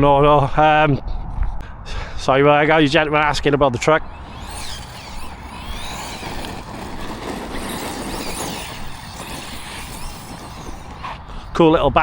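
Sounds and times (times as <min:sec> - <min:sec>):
electric motor whining: 0:04.0 - 0:11.6.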